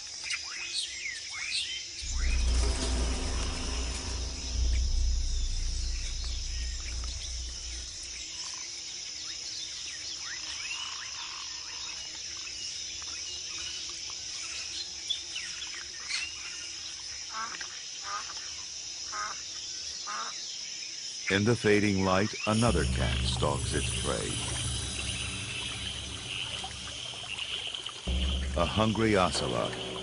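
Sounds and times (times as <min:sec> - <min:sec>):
insects chorus: 0:00.0 - 0:30.0
deep low rumble: 0:02.0 - 0:08.4, 0:22.5 - 0:30.0
birds chirping: 0:22.4 - 0:30.0.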